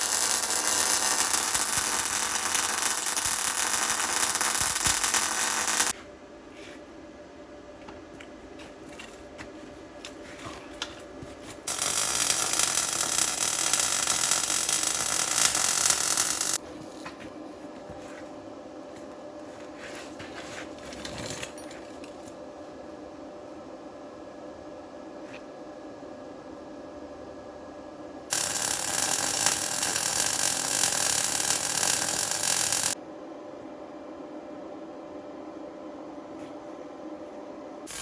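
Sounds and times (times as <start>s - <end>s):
welder arc crackling: 0.0s - 6.0s, 11.7s - 16.6s, 28.3s - 33.0s.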